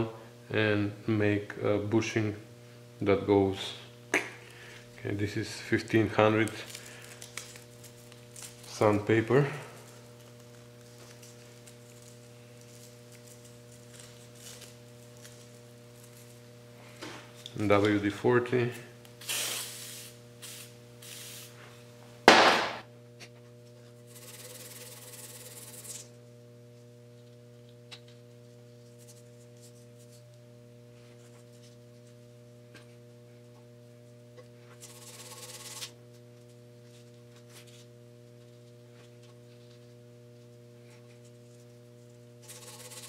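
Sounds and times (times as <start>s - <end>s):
electrical hum: 0.0s - 43.0s
spray can hissing: 19.2s - 21.5s
sandpaper rubbing on metal: 24.1s - 26.1s.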